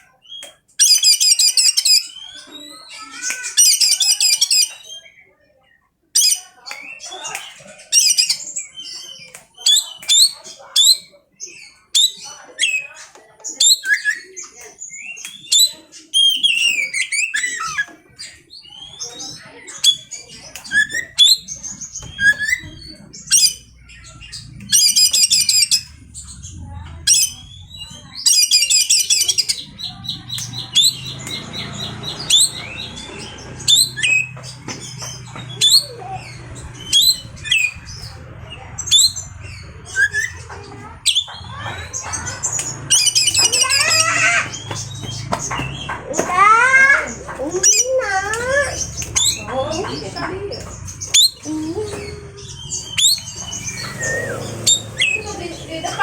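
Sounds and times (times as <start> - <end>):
harsh buzzy bird rattles: 24.4 - 56.0
bird singing whistled notes: 51.1 - 55.3.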